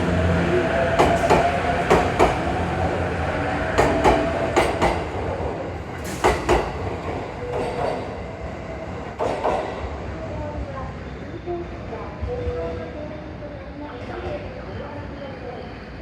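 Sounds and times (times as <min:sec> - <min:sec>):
train running rumble: 0:00.0 - 0:09.8
train wheels clacking over rail joints: 0:00.8 - 0:02.7, 0:03.7 - 0:05.3, 0:06.0 - 0:08.2, 0:09.2 - 0:09.8.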